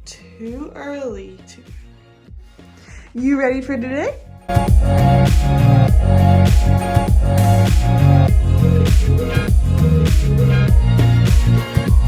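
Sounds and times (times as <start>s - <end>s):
electronic music with heavy bass: 4.3s - 12.0s.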